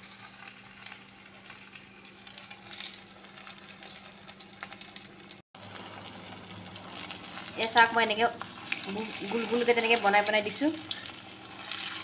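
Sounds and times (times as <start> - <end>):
batter deep-frying in hot oil: 0.0 - 12.0.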